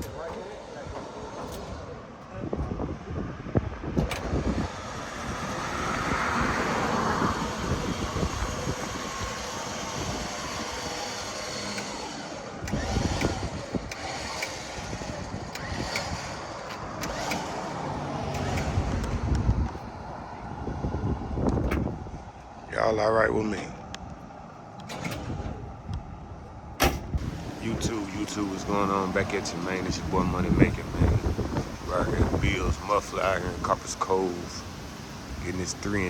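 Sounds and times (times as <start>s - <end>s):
motor vehicle running: 3.6s - 22.7s, 27.0s - 36.0s.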